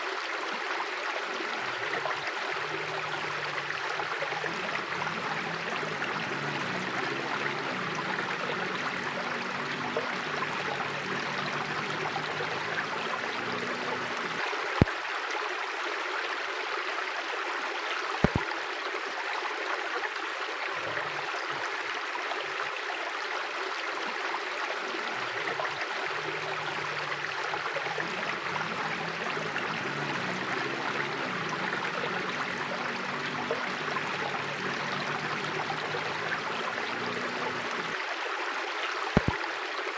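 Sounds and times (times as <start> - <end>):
river rushing: 1.4 - 14.8, 24.8 - 38.2
sharp clicks: 18.2 - 18.5, 39.2 - 39.4.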